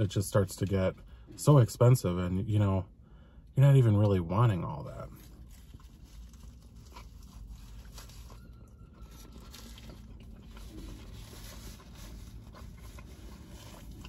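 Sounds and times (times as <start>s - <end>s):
low steady hum: 0.0s - 14.0s
man chewing a burger: 4.8s - 14.0s.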